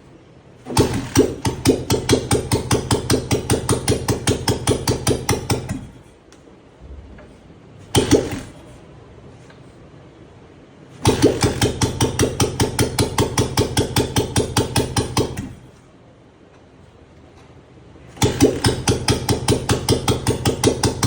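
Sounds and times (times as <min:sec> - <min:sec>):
single-cylinder engine thumping: 0:00.6 - 0:06.1, 0:10.9 - 0:15.7, 0:18.1 - 0:21.0.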